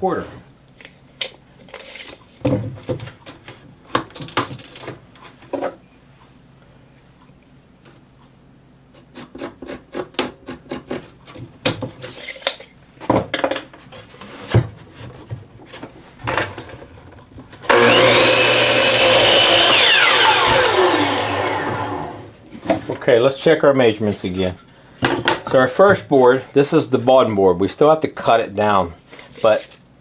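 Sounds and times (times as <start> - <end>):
saw blade spinning down: 17.7 - 22.3
electric saw cutting wood: 17.7 - 22.4.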